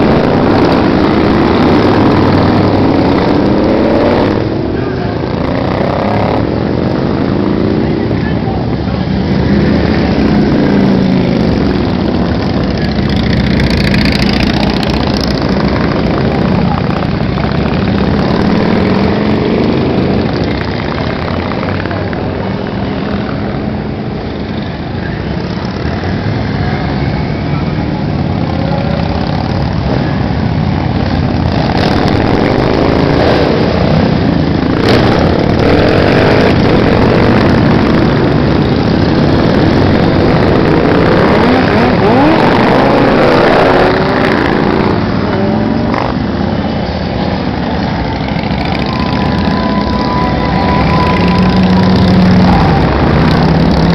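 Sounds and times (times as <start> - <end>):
motorcycles riding past: 0.0 - 53.9.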